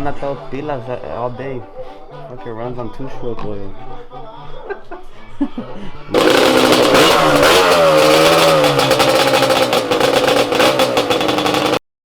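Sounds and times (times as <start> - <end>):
engine running at high revs: 6.2 - 11.8.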